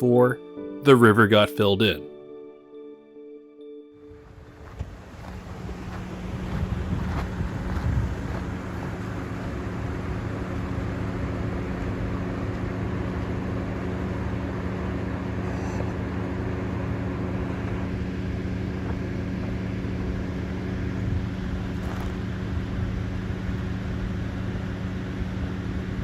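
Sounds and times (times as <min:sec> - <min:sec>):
road and wind noise: 0:04.1 - 0:26.0
vehicle engine droning: 0:04.1 - 0:26.0.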